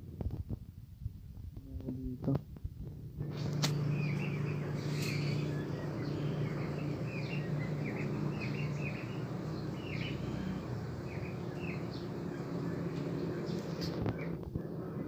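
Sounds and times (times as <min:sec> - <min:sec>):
steady low hum: 0:00.0 - 0:15.0
birds chirping: 0:03.0 - 0:15.0.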